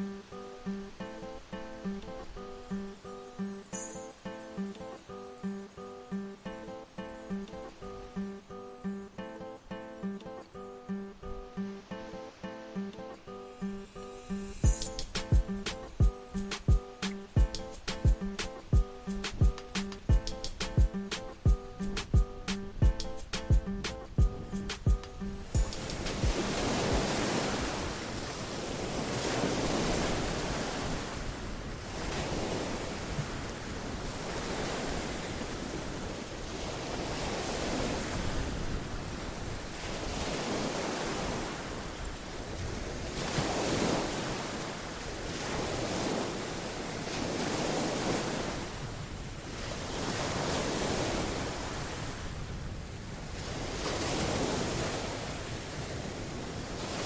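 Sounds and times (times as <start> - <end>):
ocean surf washing onto shore: 11.6 - 57.0.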